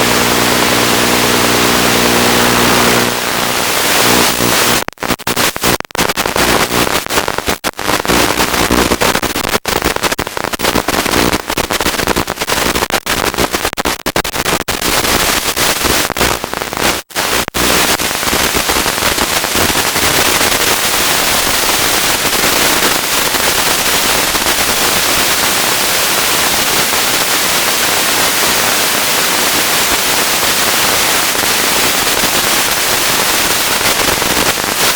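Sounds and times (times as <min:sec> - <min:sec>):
steady buzz: 0:00.0 - 0:09.2
radio static hiss: 0:00.0 - 0:34.9.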